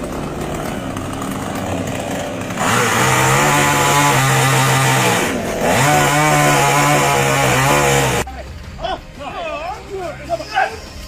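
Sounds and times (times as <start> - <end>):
chainsaw revving and cutting wood: 0.0 - 8.3.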